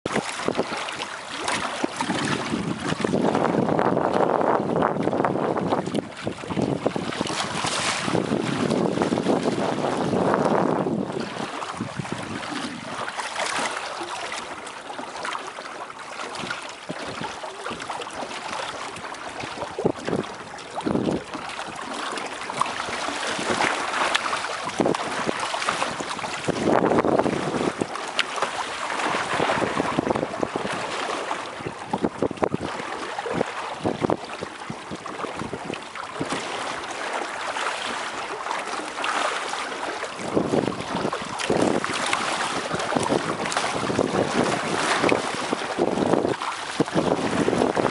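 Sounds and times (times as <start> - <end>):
water splashing against hull: 0.0 - 47.9
wind buffeting microphone: 0.1 - 13.3, 16.3 - 37.1, 40.0 - 47.9
water slaps: 20.8 - 32.6, 38.8 - 47.9.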